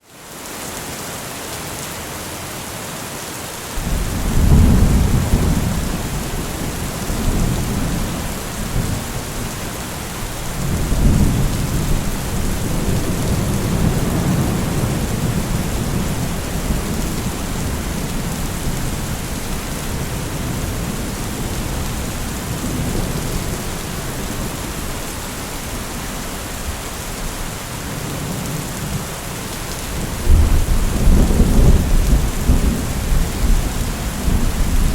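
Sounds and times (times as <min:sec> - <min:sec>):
steady rain: 0:00.0 - 0:34.9
rolling thunder: 0:03.8 - 0:25.9, 0:29.9 - 0:34.9.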